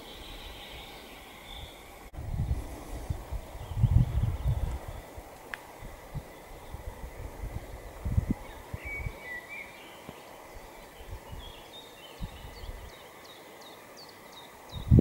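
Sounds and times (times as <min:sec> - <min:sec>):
bird chirping: 0:08.3 - 0:15.0.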